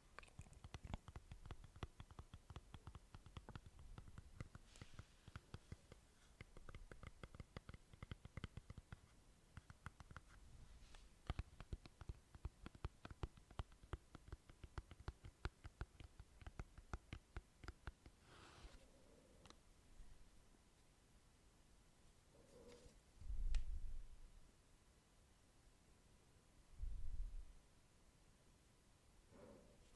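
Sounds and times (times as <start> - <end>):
wet mouth clicks and smacks: 0.1 - 2.6.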